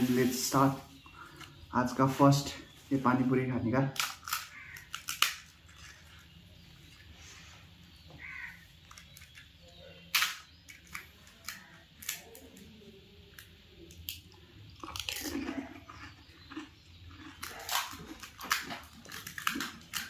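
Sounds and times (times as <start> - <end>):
crisp shells crunching: 3.9 - 7.0, 14.8 - 20.0
wet chewing: 4.0 - 7.1, 13.3 - 20.0.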